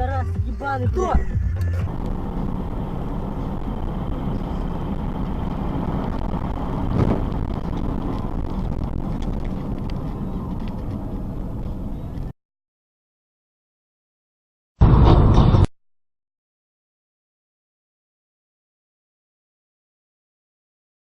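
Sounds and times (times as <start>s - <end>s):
car road and engine noise: 0.0s - 12.4s, 14.8s - 15.7s
thump: 6.9s - 7.3s.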